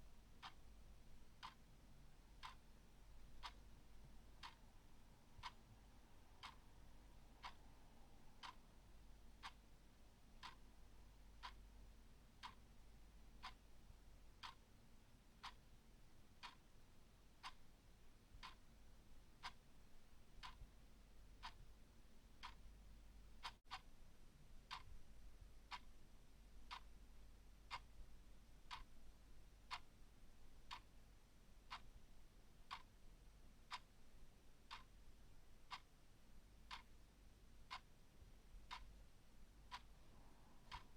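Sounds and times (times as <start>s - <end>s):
clock ticking: 0.3s - 23.8s, 24.7s - 25.0s, 25.7s - 25.9s, 26.7s - 26.9s, 27.6s - 28.0s, 28.7s - 28.9s, 29.7s - 30.0s, 30.6s - 30.9s, 31.7s - 31.9s, 32.7s - 33.0s, 33.6s - 34.0s, 34.7s - 35.0s, 35.7s - 35.9s, 36.6s - 37.0s, 37.6s - 37.9s, 38.7s - 40.9s.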